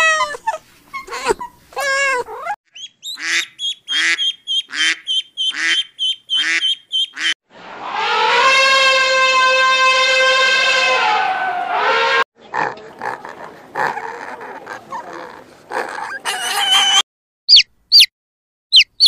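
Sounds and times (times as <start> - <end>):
duck quacking: 3.2 - 7.3
elephant trumpeting: 7.8 - 12.2.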